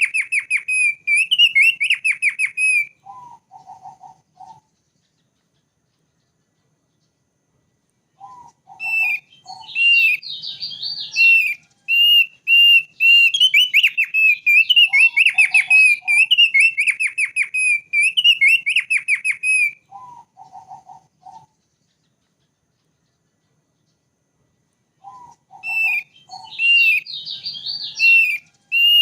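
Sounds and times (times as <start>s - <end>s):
bird singing high whistled notes: 0.0s - 4.9s, 8.2s - 21.6s, 25.0s - 29.0s.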